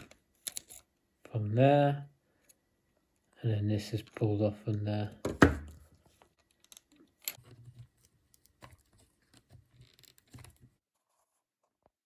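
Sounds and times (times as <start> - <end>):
plastic parts clicking: 6.4 - 7.5.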